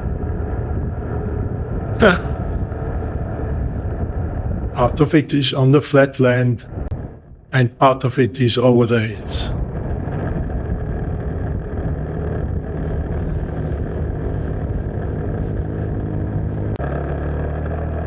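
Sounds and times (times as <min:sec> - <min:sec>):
road and wind noise: 0:00.0 - 0:18.0
motorcycle engine cruising: 0:10.6 - 0:18.0.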